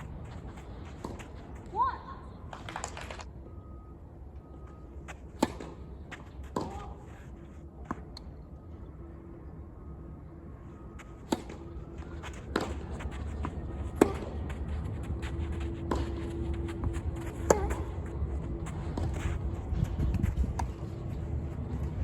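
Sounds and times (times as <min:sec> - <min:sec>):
low outdoor rumble: 0:00.0 - 0:22.0
racket striking ball: 0:05.4 - 0:05.8, 0:11.2 - 0:11.7, 0:12.4 - 0:14.4, 0:17.3 - 0:18.2
tennis ball bouncing: 0:12.4 - 0:14.6, 0:15.6 - 0:19.1.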